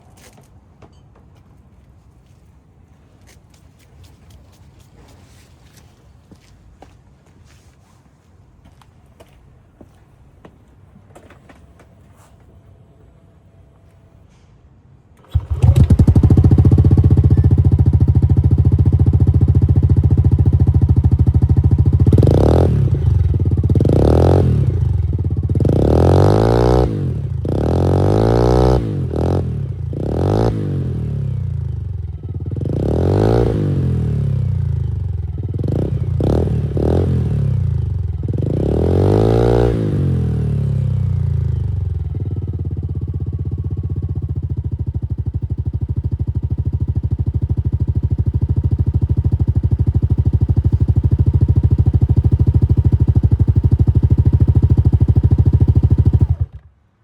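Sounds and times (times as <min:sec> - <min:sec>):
scooter engine revving: 0:15.2 - 0:56.7.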